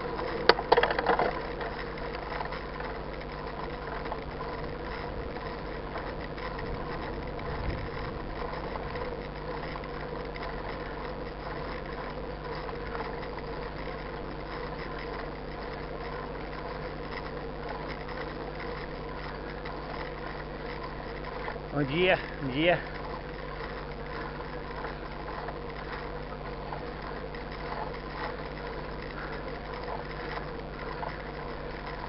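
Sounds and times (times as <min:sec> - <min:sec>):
engine idling: 0:00.0 - 0:32.0.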